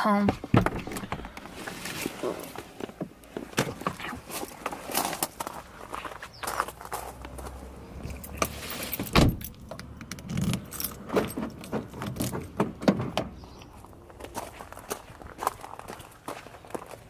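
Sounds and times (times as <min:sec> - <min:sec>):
keys jangling: 0:10.2 - 0:12.6.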